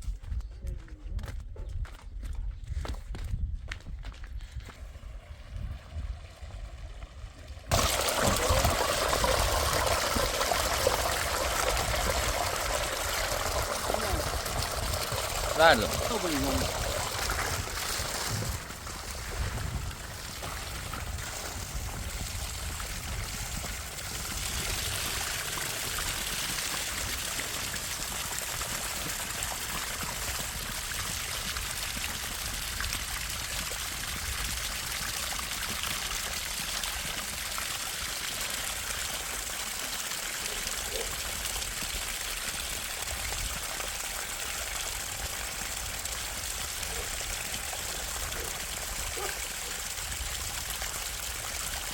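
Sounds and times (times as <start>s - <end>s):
water trickling: 6.1s - 40.6s.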